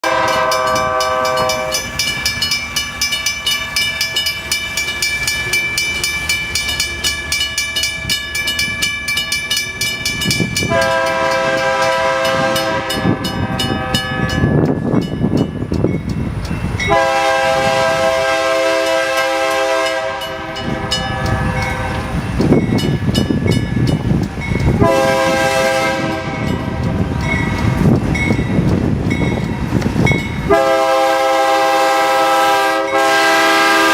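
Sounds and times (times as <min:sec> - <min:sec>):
locomotive horn blasts: 0:00.0 - 0:01.9, 0:10.6 - 0:14.5, 0:16.9 - 0:22.1, 0:24.8 - 0:26.6, 0:30.5 - 0:33.9
train rumbling past: 0:00.0 - 0:33.9.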